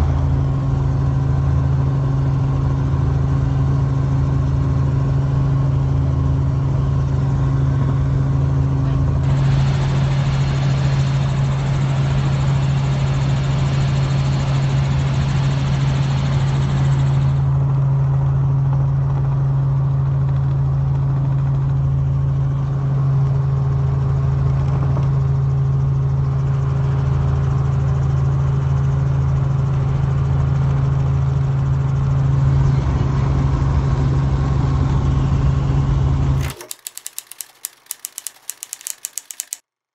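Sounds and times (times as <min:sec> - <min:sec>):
rapid sharp clicks: 0:36.4 - 0:39.6.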